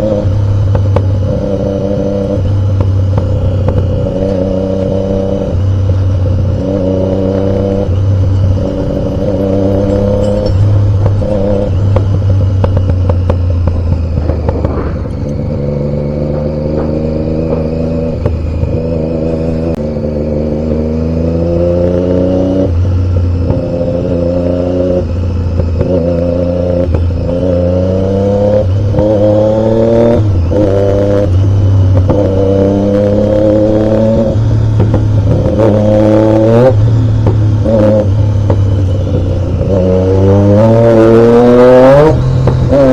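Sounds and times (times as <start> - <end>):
low rumble: 0.0 - 21.7
motorcycle engine shifting gears: 0.0 - 42.9.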